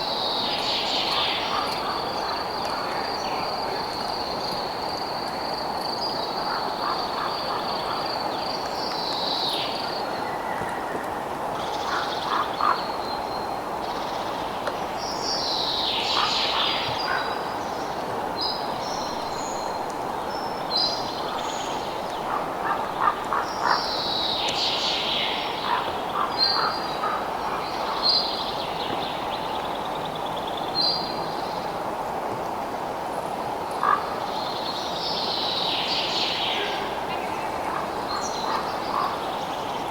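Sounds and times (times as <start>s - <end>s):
constant hiss: 0.0s - 39.9s.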